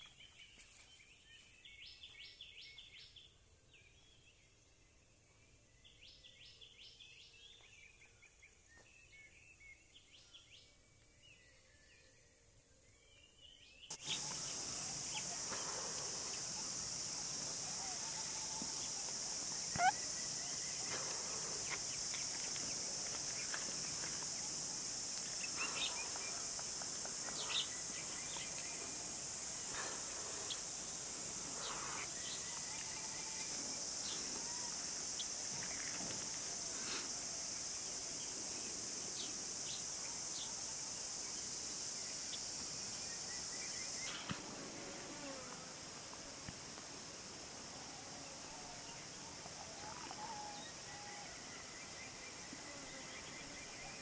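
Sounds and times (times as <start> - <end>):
bird calls and chirps: 12.9 - 24.5
high-pitched insect drone: 13.9 - 46.0.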